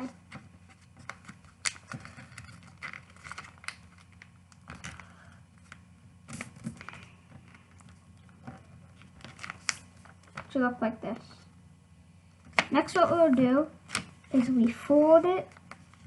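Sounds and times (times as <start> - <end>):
paper being folded and creased: 0.0 - 10.6
faint steady hum: 0.0 - 16.0.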